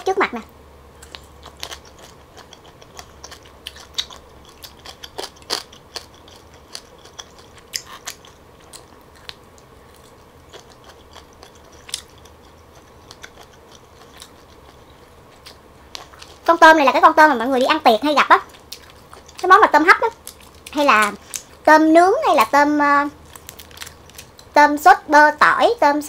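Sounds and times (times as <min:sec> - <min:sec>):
wet chewing with crisp clicks: 0:01.0 - 0:16.6, 0:18.3 - 0:21.6, 0:23.2 - 0:24.6.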